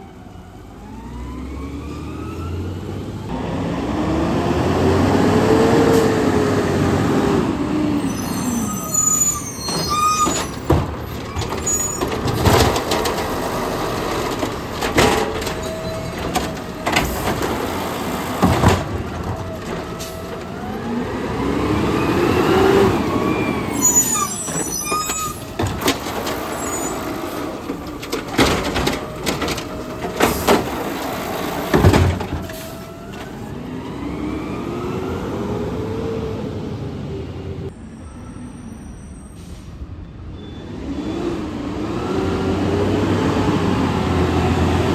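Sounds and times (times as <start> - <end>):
garbage truck engine revving: 0.6 - 37.7, 40.7 - 44.9
high squeaks: 8.0 - 17.8, 23.1 - 27.6
metal bins banging: 9.7 - 21.0, 24.5 - 33.3
air brake hissing: 39.1 - 40.0.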